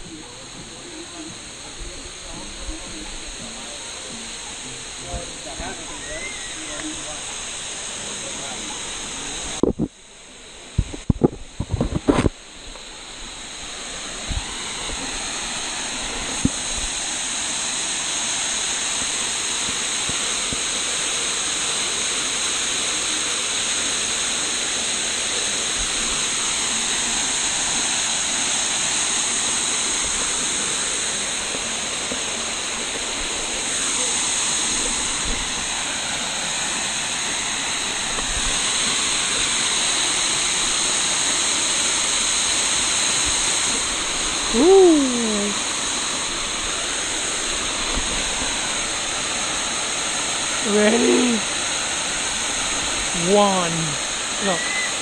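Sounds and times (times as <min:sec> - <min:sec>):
waterfall rushing: 0:00.0 - 0:10.8, 0:11.4 - 0:55.0.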